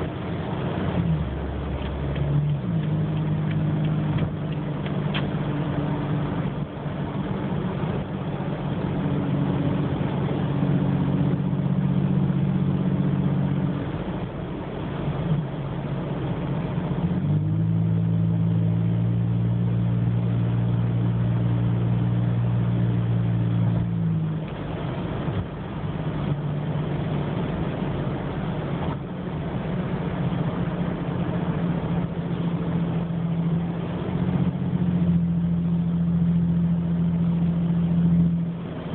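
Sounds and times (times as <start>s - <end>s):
deep exhaust drone: 0.0s - 38.9s.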